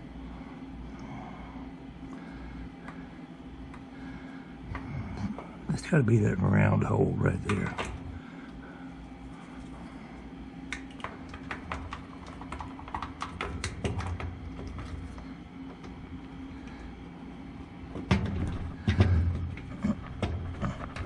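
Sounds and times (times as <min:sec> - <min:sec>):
heavier knocks: 0:18.0 - 0:21.0.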